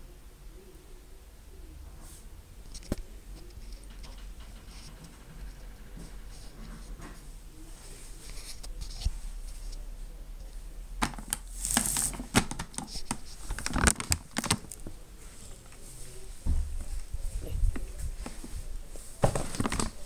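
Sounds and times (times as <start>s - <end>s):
plastic wrapping crinkling: 11.0s - 15.9s, 19.2s - 20.0s.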